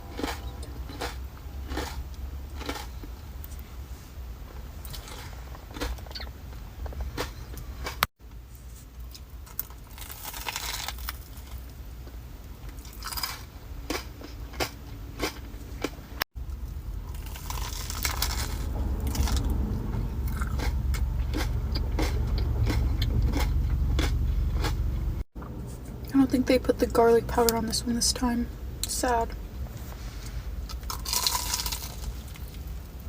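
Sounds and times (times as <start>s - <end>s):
crunchy biting and chewing: 0.0s - 3.6s, 4.8s - 8.1s, 9.0s - 11.7s, 12.7s - 19.6s, 20.2s - 24.9s, 30.7s - 32.8s.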